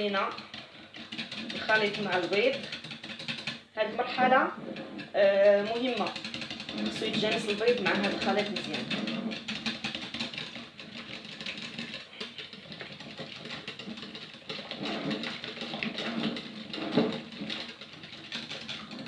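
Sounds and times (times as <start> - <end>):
whisk clicking against bowl: 0.0 - 4.2, 4.8 - 19.0.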